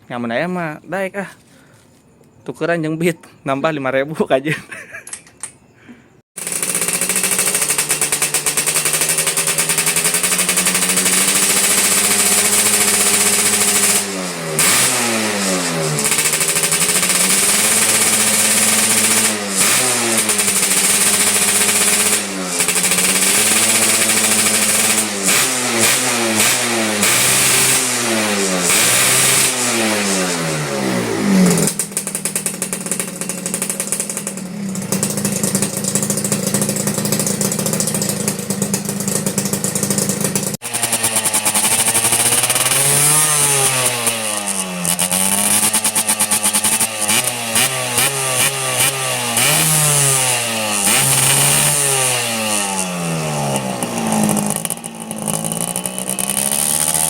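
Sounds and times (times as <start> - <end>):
two-stroke motorcycle engine revving: 6.3 - 57.0.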